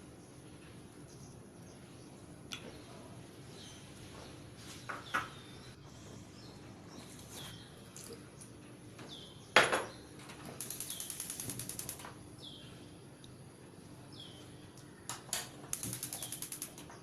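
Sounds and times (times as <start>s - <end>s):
fast even ticking: 10.6s - 12.0s, 15.8s - 16.9s.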